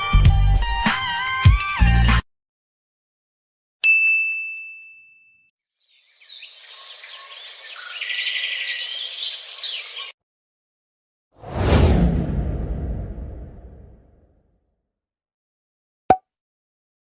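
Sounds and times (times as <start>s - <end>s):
birds chirping: 5.8s - 10.1s.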